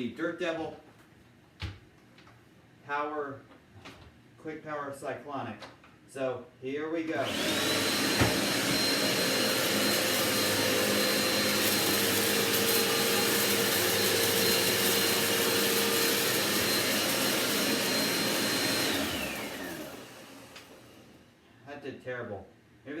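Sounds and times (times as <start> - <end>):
vacuum cleaner whining: 7.2 - 21.3.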